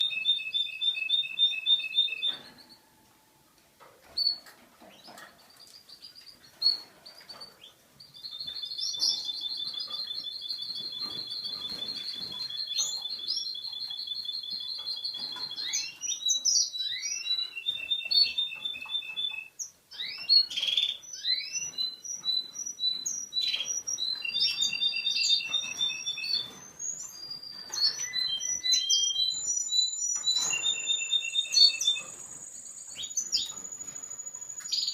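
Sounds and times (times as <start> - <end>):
canary singing trills: 0.0 - 2.8, 4.1 - 34.9.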